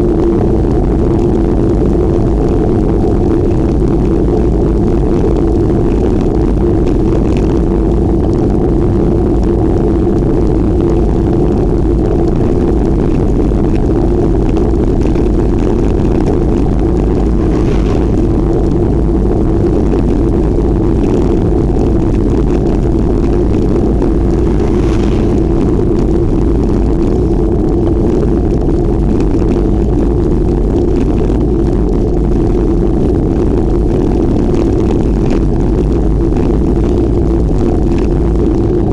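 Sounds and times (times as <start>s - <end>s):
wind rushing on microphone: 0.0s - 38.9s
road noise: 16.1s - 19.2s, 22.7s - 27.2s.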